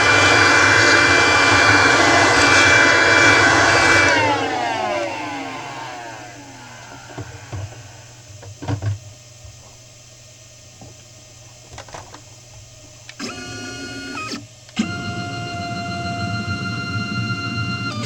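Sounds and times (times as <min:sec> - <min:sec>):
stepper motors whining: 0:00.0 - 0:08.3.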